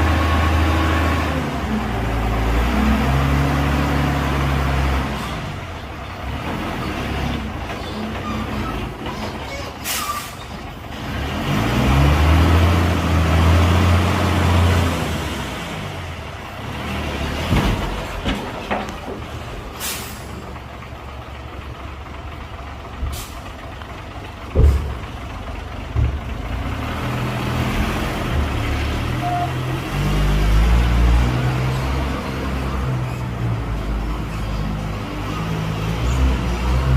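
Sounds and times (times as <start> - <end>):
diesel truck engine running: 0.0 - 36.9
air brakes hissing: 9.8 - 10.5, 19.8 - 20.4, 23.1 - 23.5
heavy clunks: 17.4 - 20.6, 24.2 - 26.7.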